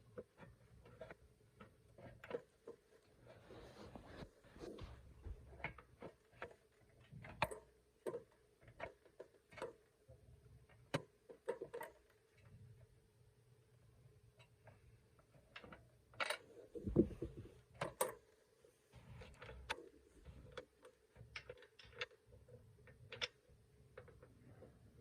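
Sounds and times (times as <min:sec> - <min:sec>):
dull thump: 0:16.8 - 0:17.5.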